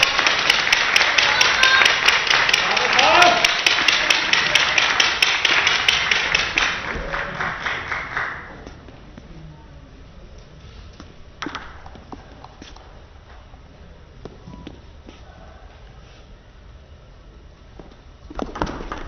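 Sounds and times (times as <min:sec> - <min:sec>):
crowd cheering: 0:00.0 - 0:08.6
crowd clapping in rhythm: 0:00.0 - 0:08.8.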